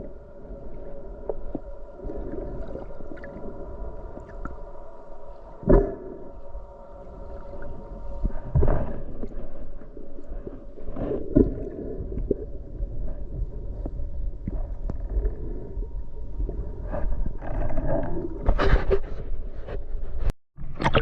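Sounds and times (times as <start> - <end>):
muffled underwater rumble: 0.0 - 21.0
clicks underwater: 20.6 - 21.0.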